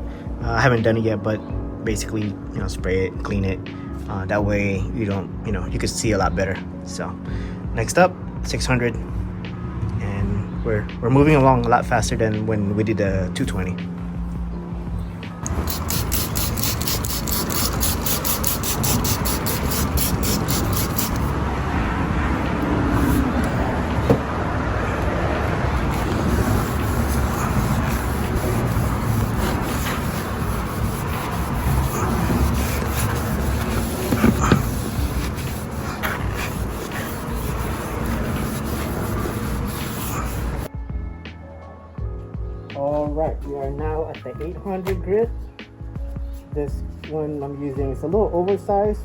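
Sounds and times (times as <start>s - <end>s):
electric sander grinding: 15.5s - 40.7s.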